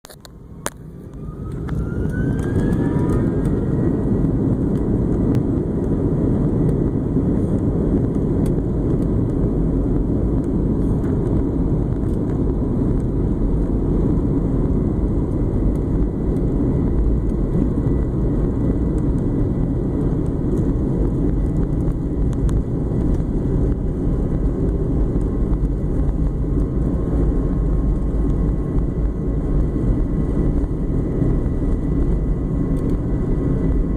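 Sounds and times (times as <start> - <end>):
airplane engines roaring with whine: 0.1 - 33.9.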